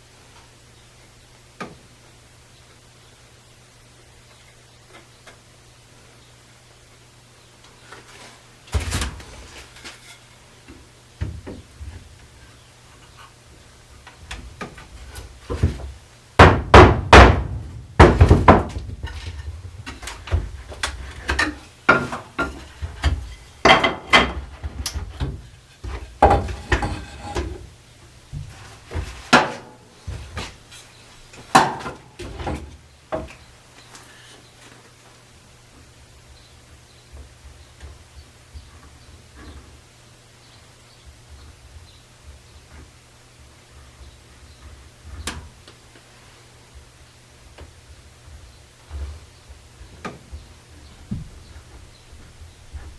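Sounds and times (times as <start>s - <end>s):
wood knocking on wood: 15.5s - 20.6s, 21.2s - 27.6s.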